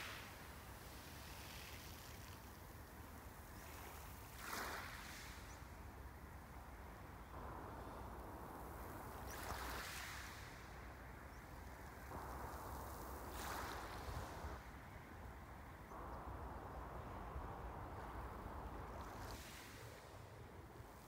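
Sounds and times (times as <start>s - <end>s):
waves washing on shore: 0.0s - 5.5s, 7.4s - 14.9s, 17.3s - 21.0s
background sea noise: 0.0s - 21.0s.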